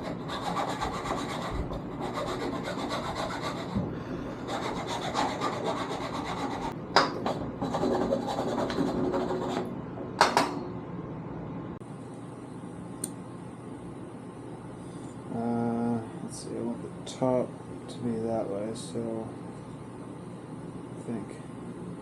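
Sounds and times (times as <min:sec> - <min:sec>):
file rasping on wood: 0:00.0 - 0:03.8, 0:04.4 - 0:06.8, 0:07.6 - 0:09.6.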